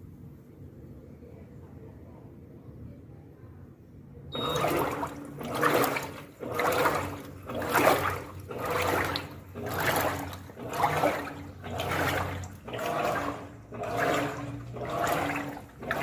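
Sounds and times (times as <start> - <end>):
washing machine sloshing water: 4.3 - 16.0.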